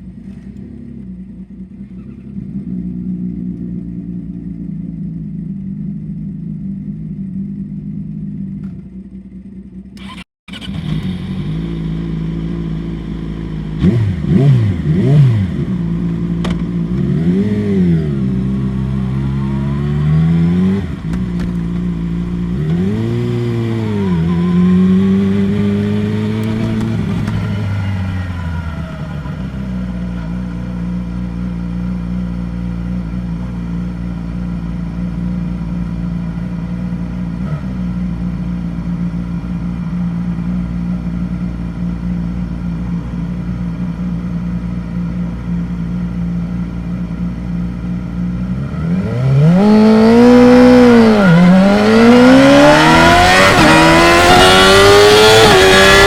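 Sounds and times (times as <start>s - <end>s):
sport bike engine revving: 10.0s - 32.3s, 48.2s - 56.0s.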